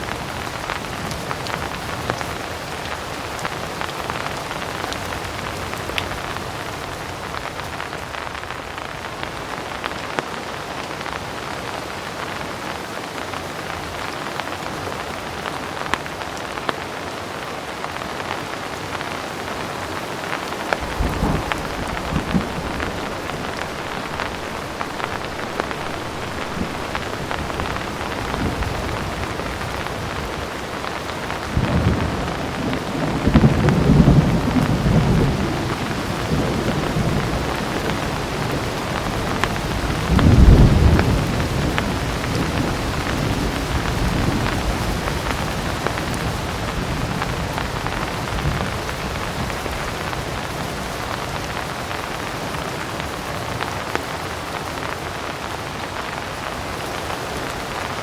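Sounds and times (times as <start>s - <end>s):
heavy rain falling: 0.0s - 58.0s
distant thunder rumbling: 20.7s - 46.4s.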